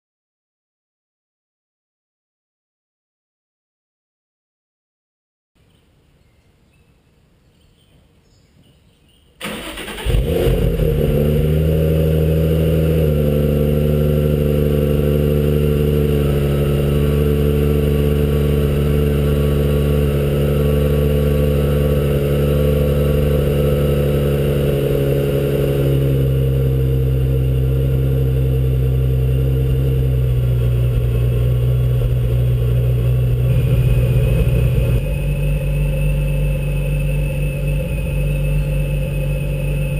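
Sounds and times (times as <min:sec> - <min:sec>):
car engine starting and idling: 0:09.4 - 0:39.9.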